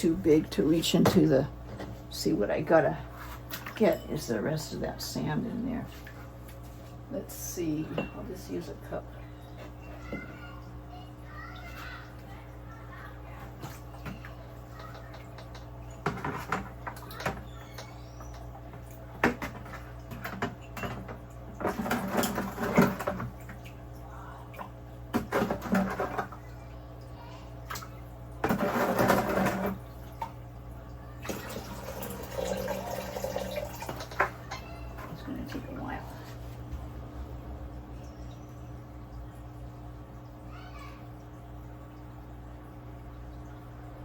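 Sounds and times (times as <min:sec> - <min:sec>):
steady low hum: 0:33.2 - 0:44.0.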